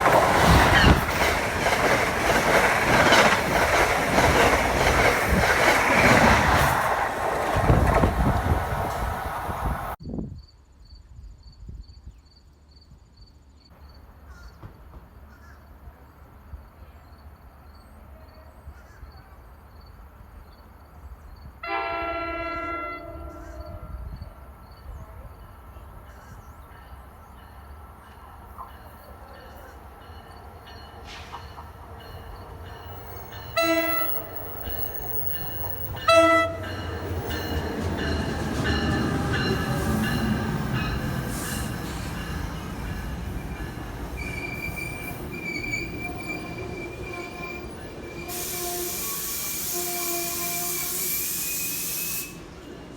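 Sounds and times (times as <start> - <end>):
approaching train rumble: 0.0 - 10.0, 13.8 - 52.9
train horn blasts: 21.6 - 24.1, 33.5 - 34.4, 35.9 - 41.7, 45.8 - 52.4.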